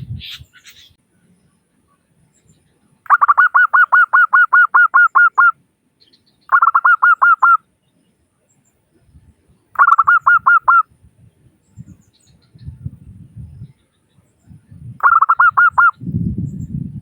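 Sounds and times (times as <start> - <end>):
dove cooing in staccato notes: 3.1 - 5.5, 6.5 - 7.6, 9.8 - 10.8, 15.0 - 16.0.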